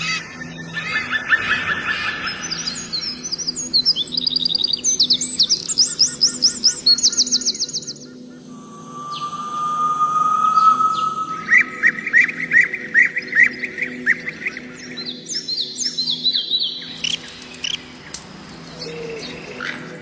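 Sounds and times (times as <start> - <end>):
songbirds singing: 0.0 - 20.0
long rising whistle: 8.5 - 13.0.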